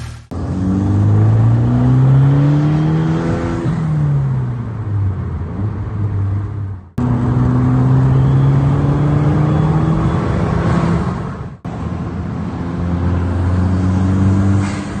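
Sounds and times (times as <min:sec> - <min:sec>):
car engine revving: 0:00.0 - 0:11.7.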